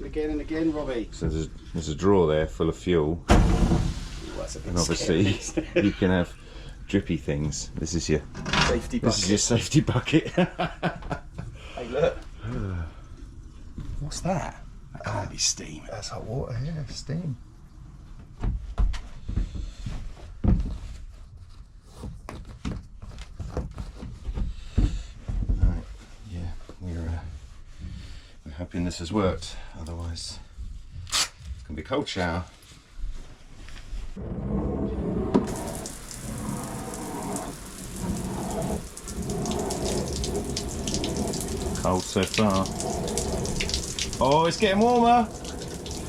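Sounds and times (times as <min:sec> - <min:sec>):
shower spraying water: 0:03.3 - 0:06.1, 0:35.4 - 0:46.0.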